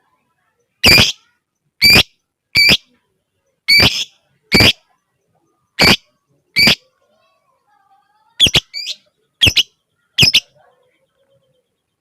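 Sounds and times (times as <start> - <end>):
lovebird shrill calls: 0.8 - 1.2, 1.8 - 2.8, 3.7 - 4.8, 5.8 - 6.0, 6.6 - 6.8, 8.4 - 10.5.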